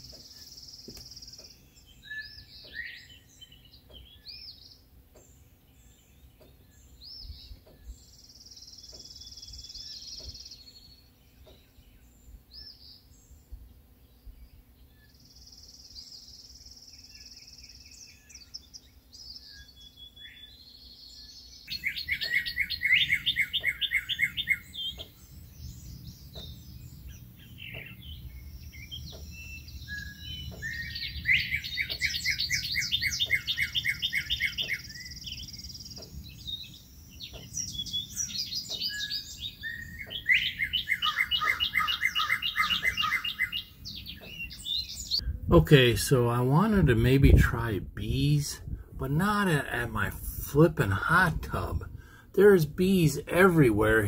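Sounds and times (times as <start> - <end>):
fast bird trills: 21.6 - 25.2, 26.2 - 36.5, 37.2 - 45.3
high bird whistles: 29.8 - 35.7, 37.3 - 45.2.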